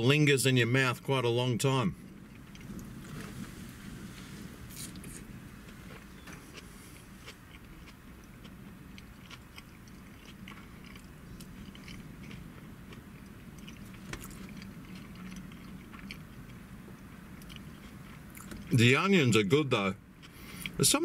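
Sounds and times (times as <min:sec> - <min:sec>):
low steady hum: 0:00.0 - 0:21.0
person chewing food: 0:02.0 - 0:03.5, 0:04.7 - 0:18.8, 0:20.2 - 0:20.8.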